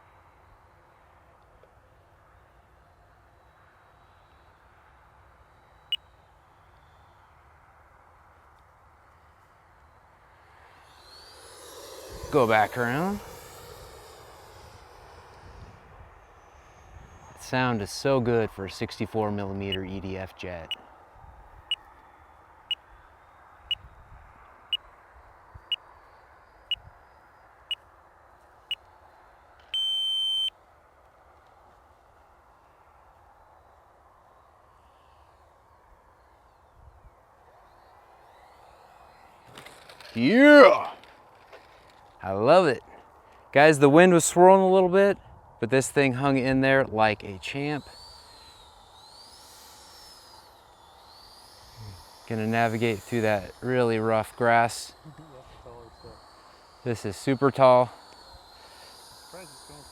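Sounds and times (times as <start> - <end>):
distant model jet whine: 9.2 - 20.0, 29.6 - 30.5, 37.5 - 42.2, 45.9 - 59.9
long steady beep: 29.7 - 30.5
short high beeps: 29.8 - 30.5.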